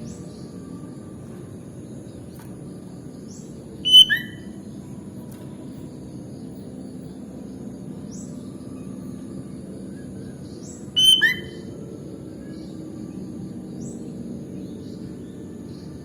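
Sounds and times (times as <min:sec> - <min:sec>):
faint rising chirps: 0:00.0 - 0:05.0
bird call: 0:03.8 - 0:04.6, 0:10.9 - 0:11.8.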